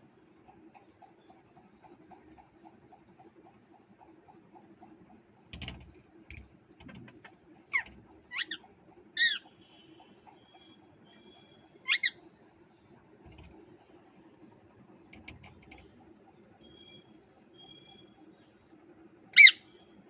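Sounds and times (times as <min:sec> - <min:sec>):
parrot sharp calls: 0:07.7 - 0:08.6, 0:09.2 - 0:09.5, 0:11.8 - 0:12.2, 0:19.4 - 0:19.7.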